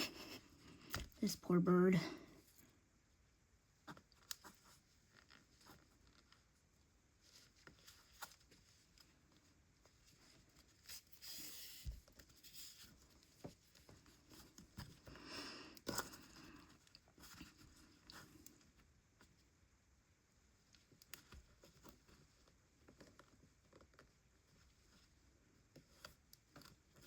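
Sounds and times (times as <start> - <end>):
yarn rustling through stitches: 3.7 - 19.6.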